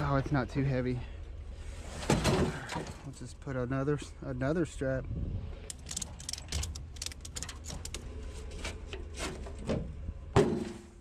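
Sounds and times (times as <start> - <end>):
strap buckle clicking and rattling: 5.7 - 8.0.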